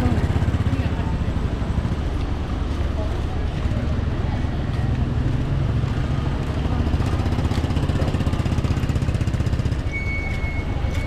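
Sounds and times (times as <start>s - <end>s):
motorbike engine running: 5.2s - 11.0s.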